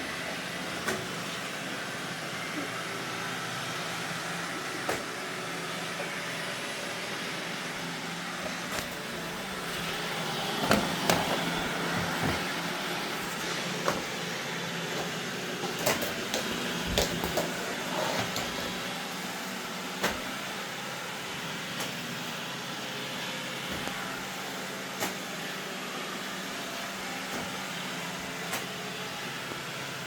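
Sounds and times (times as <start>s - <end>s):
robot vacuum humming: 0.0s - 30.0s.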